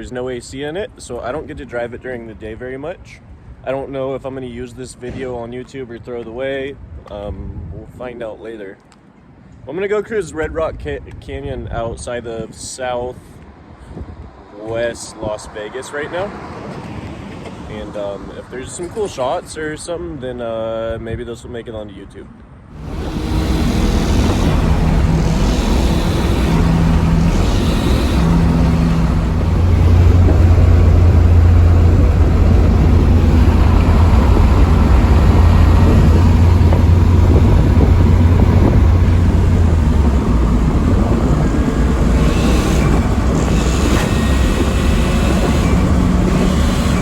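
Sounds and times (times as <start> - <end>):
car engine running: 22.7 - 47.0.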